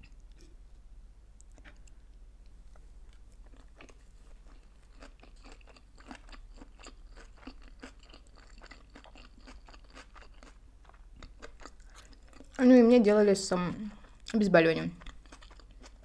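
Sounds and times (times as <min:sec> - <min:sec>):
chewing with wet mouth clicks: 0:01.4 - 0:12.6, 0:15.0 - 0:16.0.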